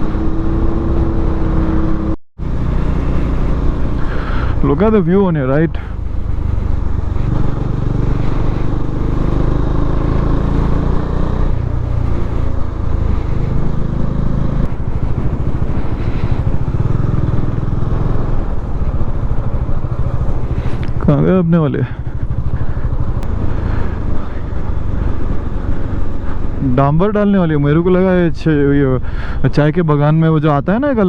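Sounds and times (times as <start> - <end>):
motorcycle engine running: 0.0 - 28.3
wind and road noise: 0.0 - 31.0.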